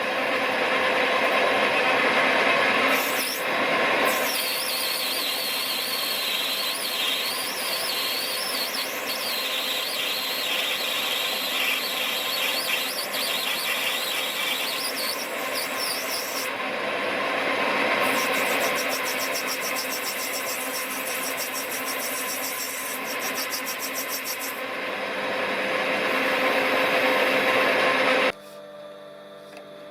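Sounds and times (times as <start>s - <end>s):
high-pitched cutting squeal: 2.8s - 16.7s, 17.3s - 24.7s
machine tool cutting brass: 2.8s - 24.6s.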